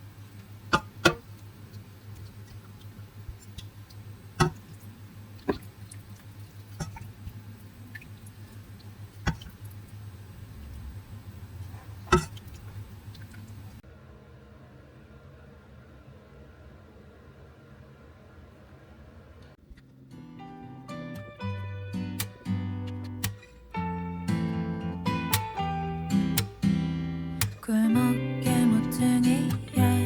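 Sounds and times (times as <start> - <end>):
sharp clicks and taps: 22.2 - 23.6, 25.3 - 25.6, 26.3 - 26.6, 27.4 - 27.6.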